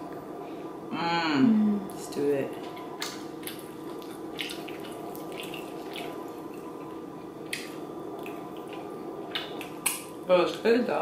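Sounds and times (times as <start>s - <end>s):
wet chewing and lip-smacking: 2.6s - 10.2s.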